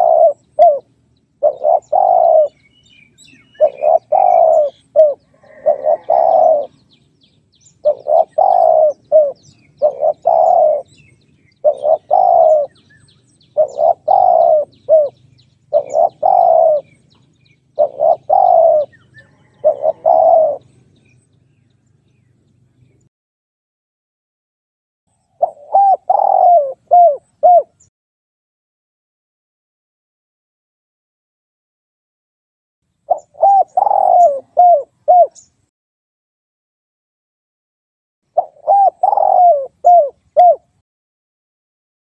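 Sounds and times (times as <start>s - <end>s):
dove cooing: 0.0s - 7.0s, 7.7s - 21.2s, 25.4s - 27.9s, 33.1s - 35.5s, 38.3s - 40.8s.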